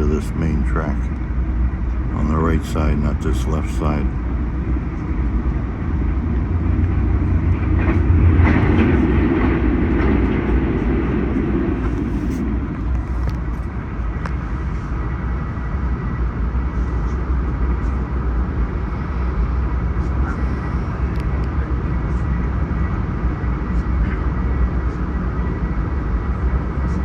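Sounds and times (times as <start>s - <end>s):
train car body rumbling: 4.2s - 14.7s.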